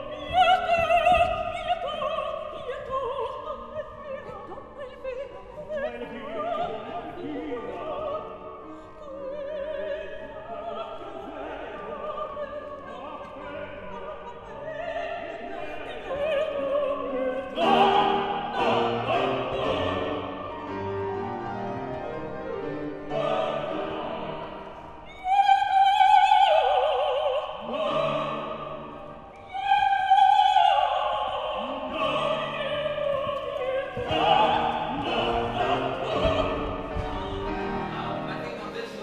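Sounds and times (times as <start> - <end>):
operatic soprano singing: 0.0 - 21.5, 22.4 - 39.0
instrumental accompaniment: 31.9 - 39.0.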